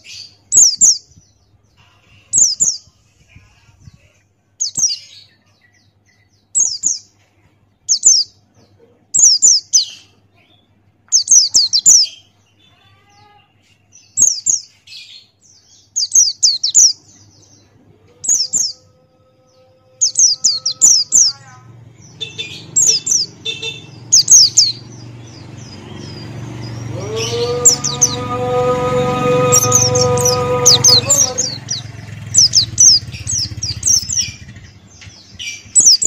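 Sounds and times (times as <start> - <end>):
bird singing high slurred notes: 0.0 - 3.0, 6.1 - 7.1, 7.9 - 8.4, 11.1 - 12.7, 13.9 - 36.0
low hum: 24.7 - 35.1
held musical tone: 24.8 - 34.6.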